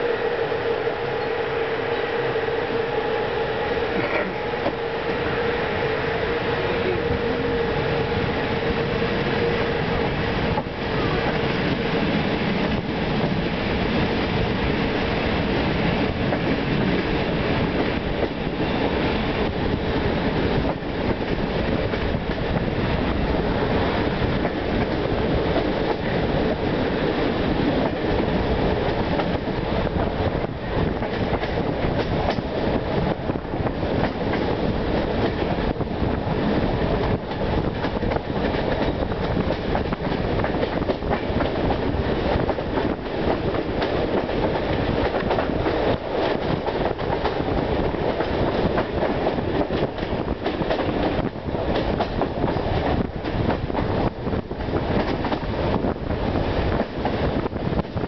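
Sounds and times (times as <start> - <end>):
train wheels rumbling: 0.0 - 58.0
rail-joint clicks: 3.7 - 4.8, 28.8 - 29.5, 30.9 - 32.7, 33.9 - 35.6, 36.9 - 54.1, 54.8 - 55.6.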